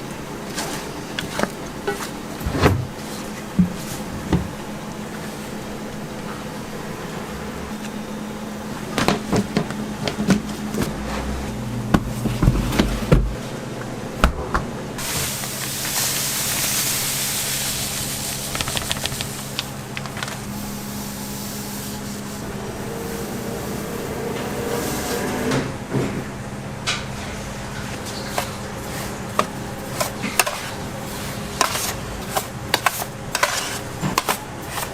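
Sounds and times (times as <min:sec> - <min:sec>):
steady machine hum: 0:00.0 - 0:34.9
kitchen work clatter and knocks: 0:00.5 - 0:04.6, 0:08.9 - 0:13.4, 0:25.4 - 0:34.9
loud hiss: 0:15.0 - 0:19.5.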